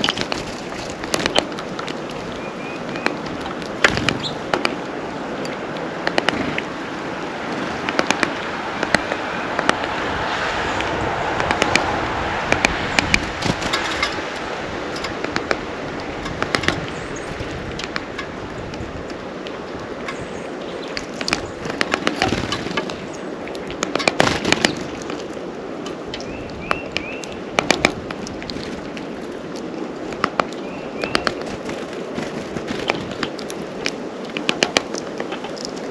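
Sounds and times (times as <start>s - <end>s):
birds pecking and hopping on feeder: 0.0s - 35.9s
steady background noise: 0.0s - 35.9s
bird chirps: 2.3s - 3.2s, 26.2s - 27.4s, 30.5s - 31.5s.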